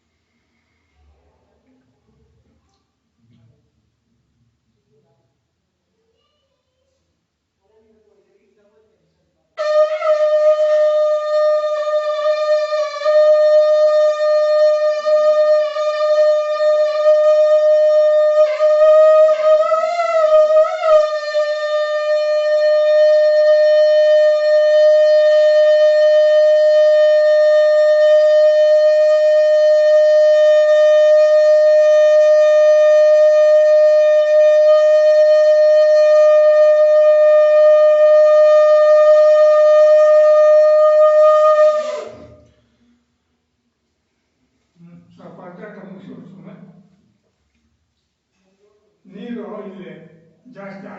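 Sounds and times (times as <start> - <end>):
conch shell blown: 9.6 - 42.7.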